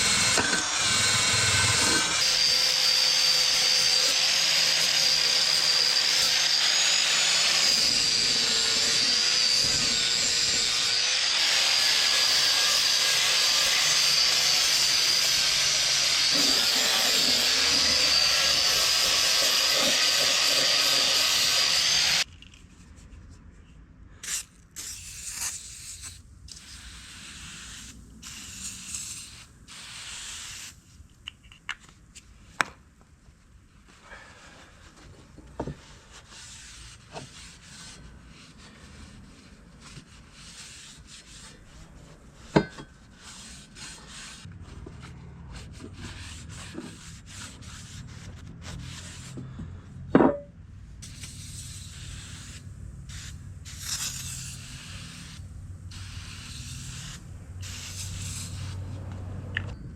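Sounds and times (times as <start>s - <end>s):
drill wire brush rasping on steel: 0.0s - 22.3s, 35.9s - 49.5s, 51.0s - 59.0s.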